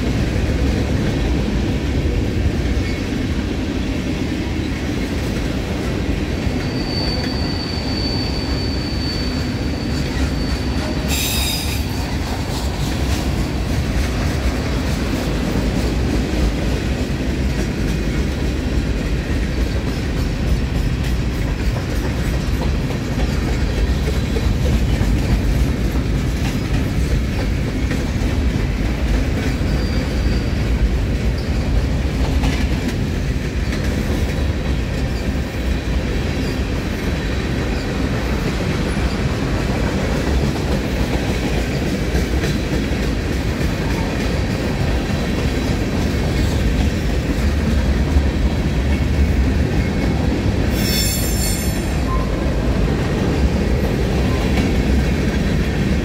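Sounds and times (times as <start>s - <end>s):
freight train cars rumbling past: 0.0s - 56.0s
high wheel squeal: 6.5s - 12.2s, 29.6s - 30.6s, 50.7s - 52.5s
sharp wheel screech: 6.6s - 12.0s, 50.7s - 52.3s.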